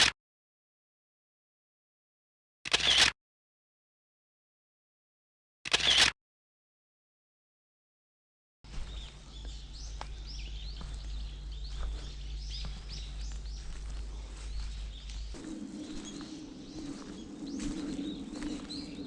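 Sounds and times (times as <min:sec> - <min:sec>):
low outdoor rumble: 0:08.7 - 0:19.0
wild birds chirping: 0:08.7 - 0:19.0
steady low noise: 0:09.1 - 0:19.0.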